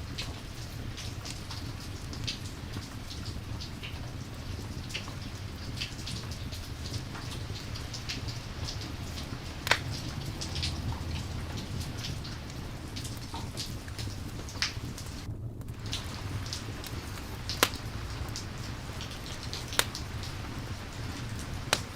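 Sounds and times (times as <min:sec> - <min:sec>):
steady rain: 0:00.0 - 0:21.9
short sharp pops: 0:09.6 - 0:10.0, 0:15.9 - 0:18.0.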